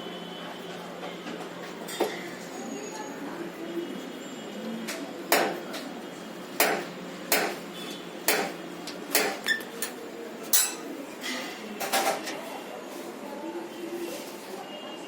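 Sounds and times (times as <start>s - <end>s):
sharp metallic knocks: 6.6s - 7.6s, 8.3s - 9.4s.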